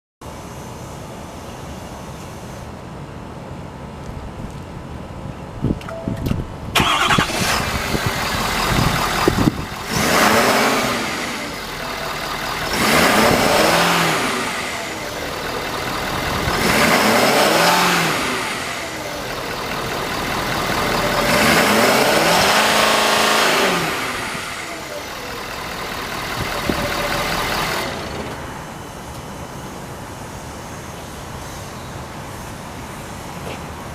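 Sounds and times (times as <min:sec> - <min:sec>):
pickup engine starting: 0:06.2 - 0:28.8
engine revving: 0:06.8 - 0:28.5.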